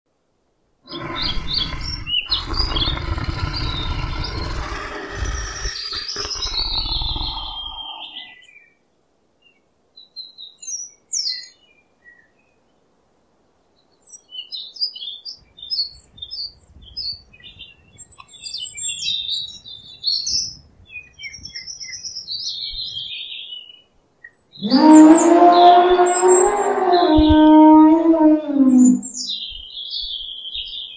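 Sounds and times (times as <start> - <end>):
low drawn-out animal call: 0.9 - 8.4, 24.6 - 29.3
rough low animal sound: 0.9 - 8.4, 24.6 - 29.2
small birds chirping: 0.9 - 8.7, 13.8 - 30.9.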